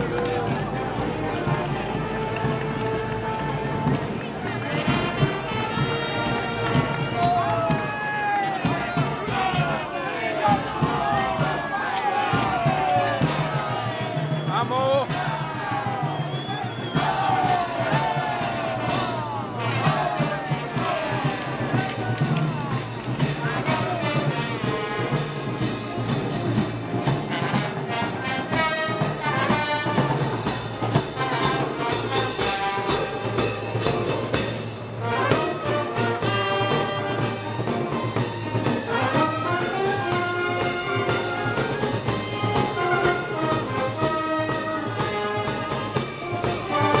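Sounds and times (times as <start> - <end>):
trumpets and trombones melody: 0.0 - 14.3, 17.0 - 47.0
brass band playing: 0.0 - 47.0
drum and cymbal beat: 3.7 - 47.0.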